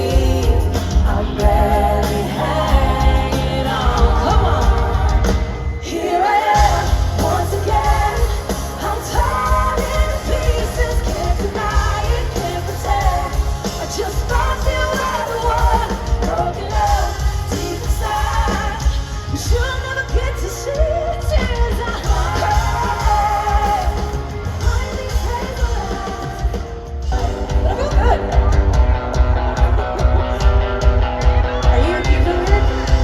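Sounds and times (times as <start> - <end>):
band playing pop-rock: 0.0 - 33.0
person singing: 31.6 - 33.0.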